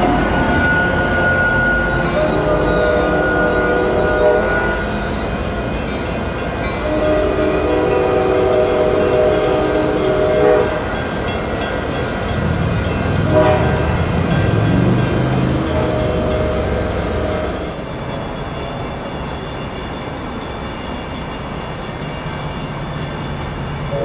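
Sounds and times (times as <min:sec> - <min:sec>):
train rumble: 0:00.0 - 0:24.0
train air horn blasts: 0:00.6 - 0:05.0, 0:06.8 - 0:11.0, 0:13.2 - 0:14.1.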